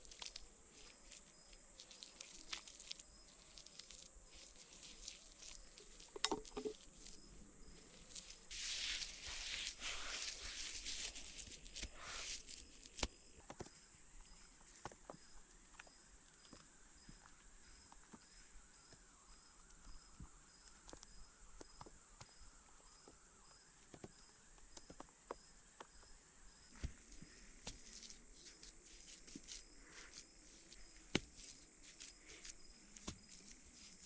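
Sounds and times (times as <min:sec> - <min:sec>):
rustling: 0:00.0 - 0:13.2
insect chirping: 0:00.0 - 0:34.0
insects buzzing: 0:00.0 - 0:34.0.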